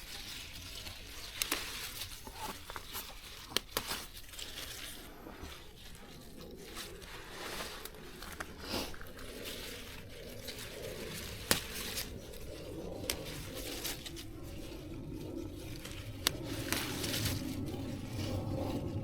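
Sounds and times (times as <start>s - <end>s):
rustling and crinkling handling noise: 0.0s - 19.0s.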